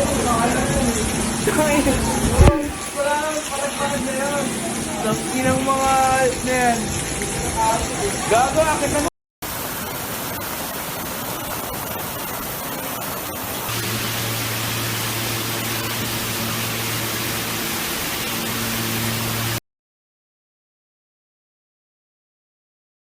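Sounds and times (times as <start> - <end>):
steady hiss: 0.2 - 19.6.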